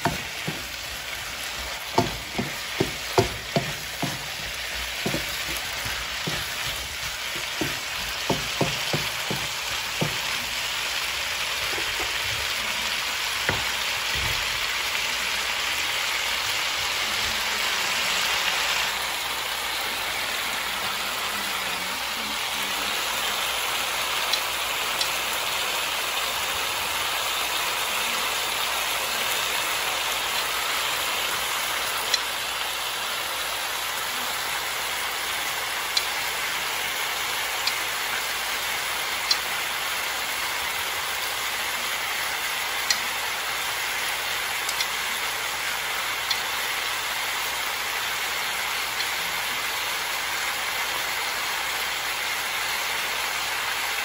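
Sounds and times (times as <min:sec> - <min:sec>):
oil popping: 0:00.0 - 0:14.8
food sizzling in oil: 0:00.0 - 0:54.0.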